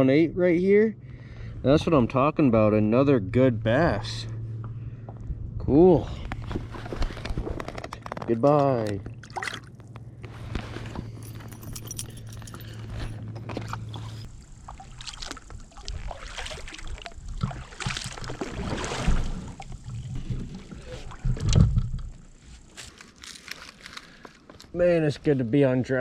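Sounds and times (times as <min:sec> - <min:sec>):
steady low hum: 0:00.0 - 0:26.0
water sloshing along hull: 0:06.2 - 0:08.3, 0:08.9 - 0:24.5.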